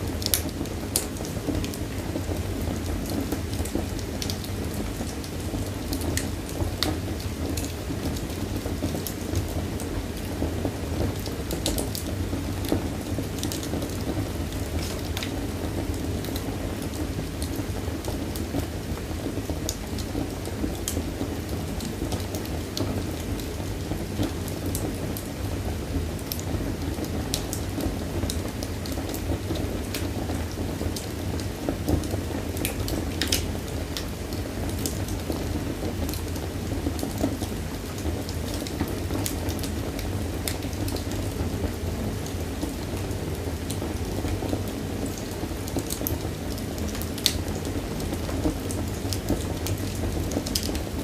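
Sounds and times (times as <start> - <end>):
fire crackling and popping: 0.0 - 51.0
fire rumbling in fireplace: 0.0 - 51.0.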